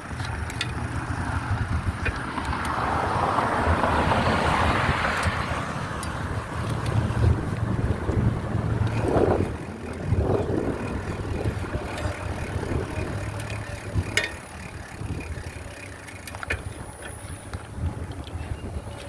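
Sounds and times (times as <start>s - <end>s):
sharp clicks: 0.0s - 2.8s
bicycle tyre rumble: 0.0s - 19.0s
wind buffeting microphone: 0.0s - 19.0s.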